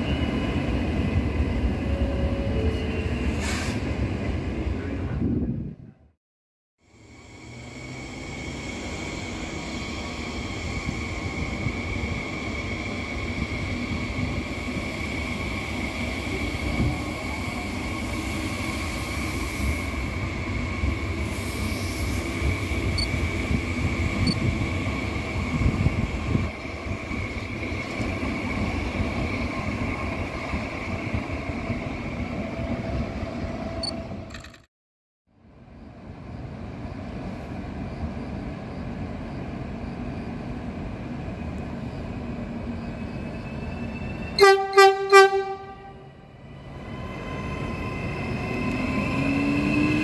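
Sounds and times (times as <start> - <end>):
train rumbling on rails: 0.0 - 6.1, 6.9 - 34.6, 35.3 - 50.0.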